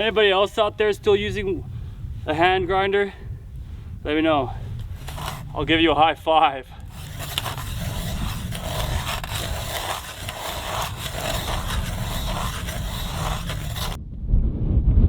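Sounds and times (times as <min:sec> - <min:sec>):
wind rumble on microphone: 0:00.0 - 0:10.2, 0:10.9 - 0:15.0
ice auger scraping through ice: 0:04.8 - 0:05.6, 0:06.8 - 0:14.0.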